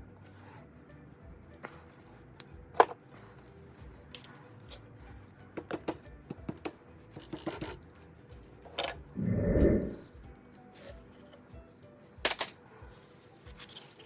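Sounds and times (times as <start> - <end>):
hand tools clinking on metal: 2.8 - 4.9, 5.6 - 9.1, 10.7 - 11.4.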